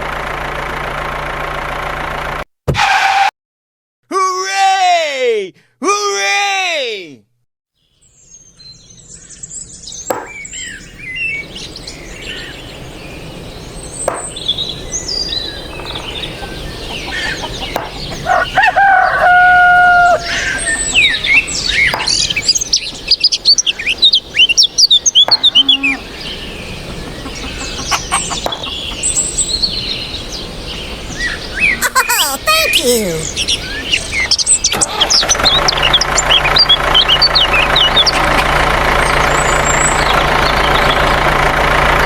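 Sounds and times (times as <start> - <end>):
small birds chirping: 7.8 - 41.2
rooster crowing: 16.1 - 21.8.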